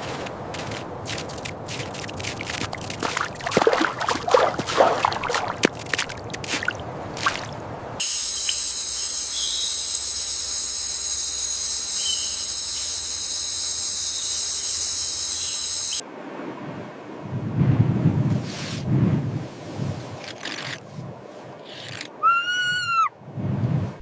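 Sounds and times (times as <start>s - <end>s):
water trickling and splashing: 0.0s - 8.6s
high-pitched insect chorus: 8.0s - 16.0s.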